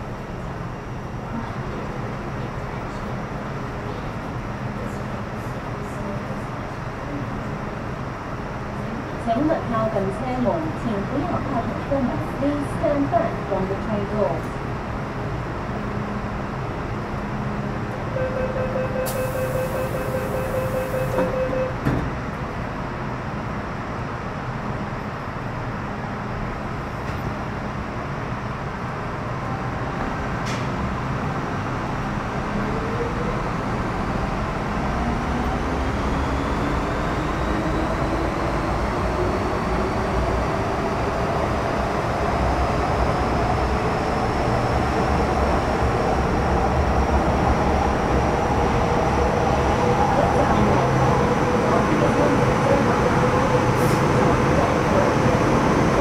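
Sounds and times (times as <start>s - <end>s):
train door warning tone: 18.1s - 21.9s
train running rumble: 19.8s - 56.0s.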